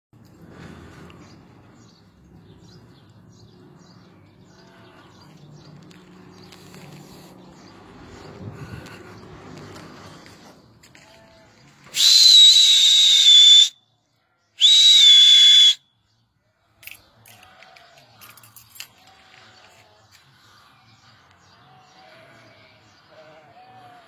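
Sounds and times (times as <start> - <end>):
faint sheep bleating: 4.4 - 5.3, 10.9 - 11.7, 21.6 - 24.0
loud whistle blasts: 11.9 - 13.8, 14.6 - 15.9.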